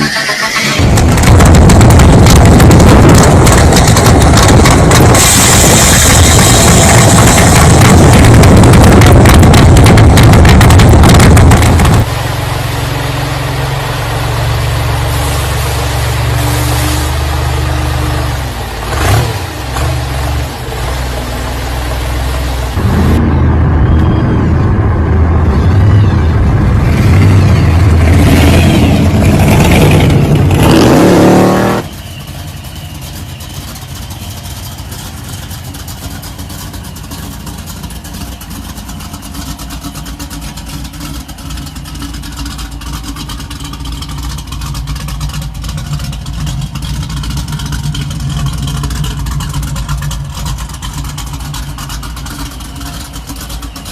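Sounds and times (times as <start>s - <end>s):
car engine revving: 0.0s - 12.1s, 13.4s - 53.9s
engine running low: 0.0s - 53.9s.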